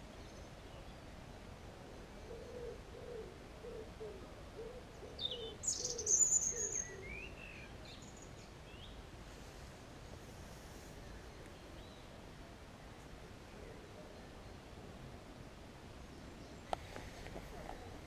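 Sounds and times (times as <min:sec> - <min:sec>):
songbird chirping: 0:00.0 - 0:18.0
pigeon cooing: 0:02.1 - 0:06.2.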